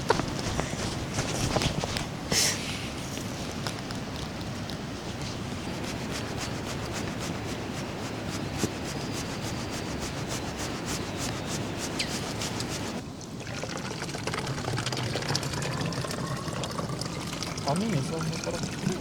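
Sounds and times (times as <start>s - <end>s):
rain pattering: 12.9s - 19.0s.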